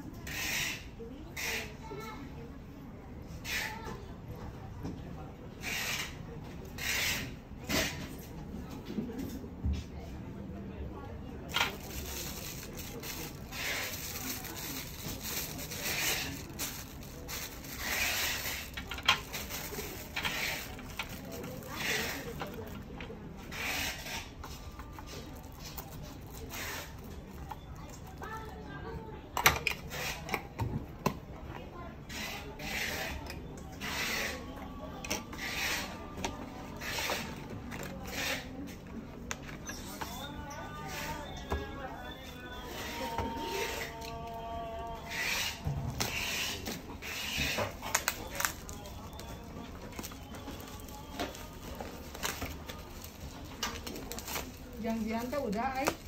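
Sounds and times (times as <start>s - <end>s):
packaging rasping rubbing strokes: 11.5s - 22.6s.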